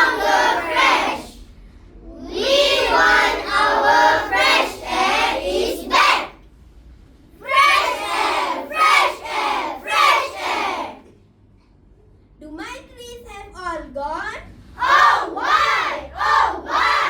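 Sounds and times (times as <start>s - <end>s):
children reciting in unison: 0.0s - 1.5s, 2.1s - 6.4s, 7.4s - 11.1s, 14.8s - 17.0s.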